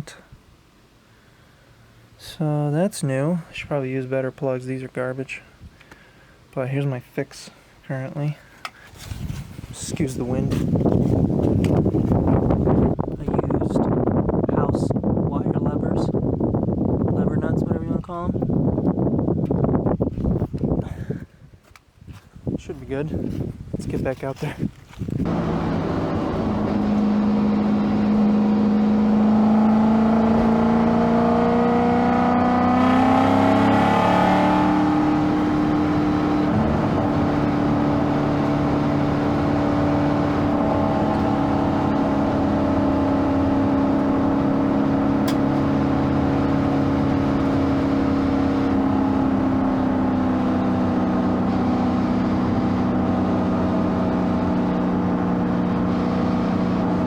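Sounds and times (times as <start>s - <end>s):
car engine accelerating: 25.2s - 57.0s.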